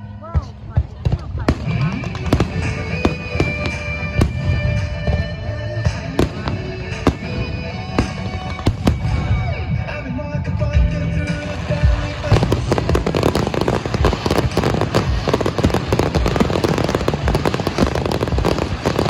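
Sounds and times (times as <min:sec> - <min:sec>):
music with long held notes: 0:00.0 - 0:19.0
fireworks bangs: 0:00.4 - 0:10.0, 0:11.2 - 0:19.0.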